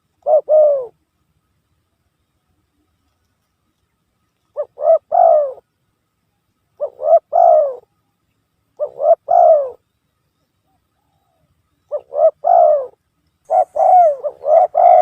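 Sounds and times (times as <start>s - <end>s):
dove cooing: 0.0s - 1.0s, 4.5s - 5.7s, 6.8s - 8.0s, 8.8s - 9.8s, 10.6s - 15.0s.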